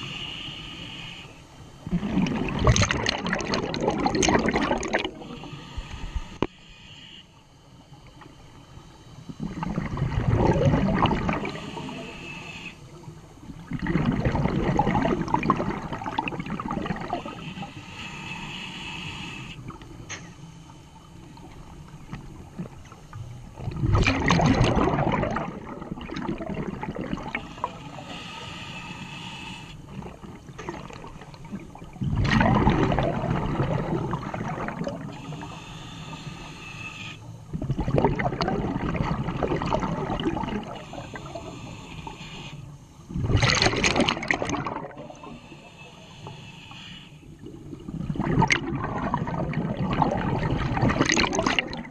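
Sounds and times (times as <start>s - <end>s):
exhaled bubbles rushing: 1.8s - 5.4s, 9.4s - 11.6s, 13.5s - 17.4s, 23.6s - 27.7s, 29.9s - 35.3s, 37.5s - 41.4s, 43.1s - 45.4s, 47.4s - 51.9s.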